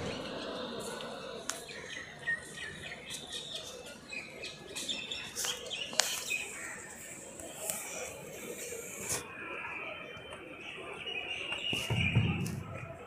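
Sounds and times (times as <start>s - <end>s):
birds chirping: 0.0s - 8.9s.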